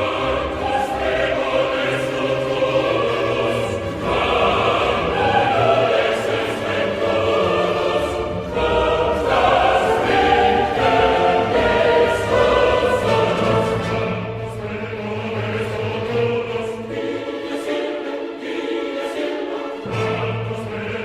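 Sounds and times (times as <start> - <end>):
choir singing held chords: 0.0 - 21.0.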